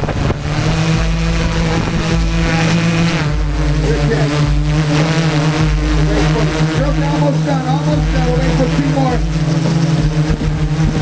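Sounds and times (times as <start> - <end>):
engine running steadily: 0.0 - 11.0
low pulsing rumble: 0.0 - 11.0.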